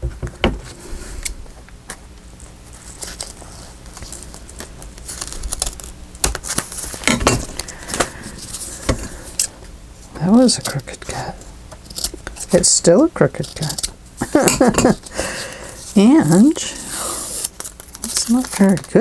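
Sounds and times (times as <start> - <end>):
paper and cloth rustling: 2.7 - 9.2, 14.2 - 19.0.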